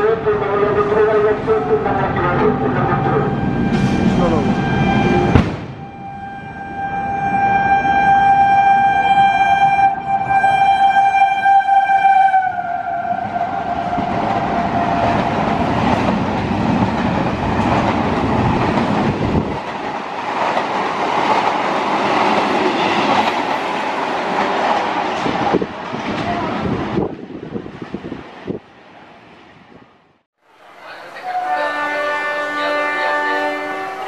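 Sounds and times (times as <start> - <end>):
train horn: 3.2 - 15.2, 31.2 - 34.0.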